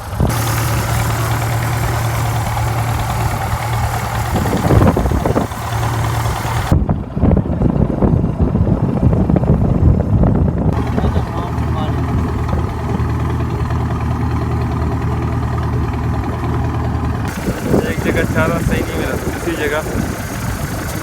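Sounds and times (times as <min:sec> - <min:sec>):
wind and water hiss: 0:00.0 - 0:06.7, 0:16.2 - 0:21.0
boat engine running: 0:00.0 - 0:21.0.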